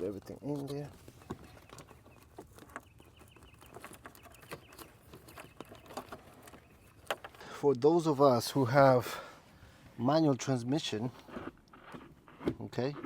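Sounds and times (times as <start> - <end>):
wiring and plastic being handled: 0.0 - 7.4.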